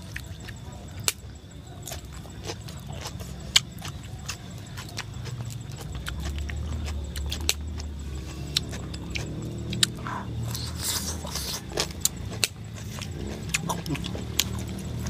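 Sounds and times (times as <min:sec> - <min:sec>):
steady low hum: 0:00.0 - 0:15.0
wet chewing and lip smacks: 0:00.0 - 0:15.0.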